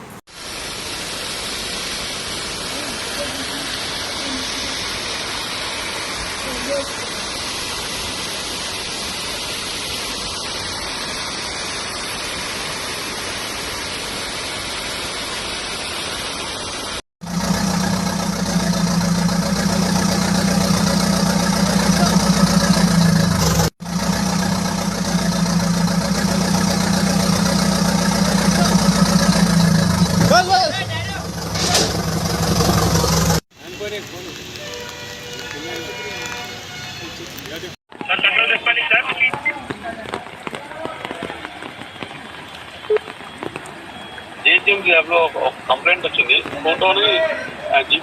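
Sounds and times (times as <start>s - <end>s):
rushing floodwater hiss: 0.0s - 48.0s
engine idling: 17.2s - 33.4s.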